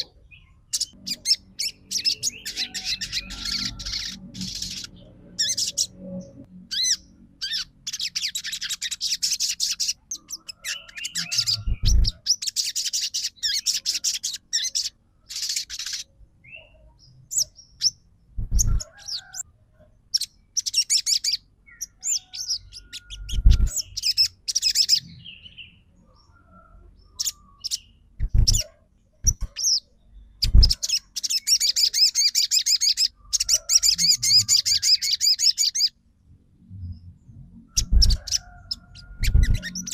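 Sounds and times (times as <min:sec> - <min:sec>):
songbird chattering trills: 0:00.0 - 0:06.0, 0:06.7 - 0:19.4, 0:27.1 - 0:35.9
dull low thumps: 0:11.6 - 0:12.2, 0:18.4 - 0:18.8.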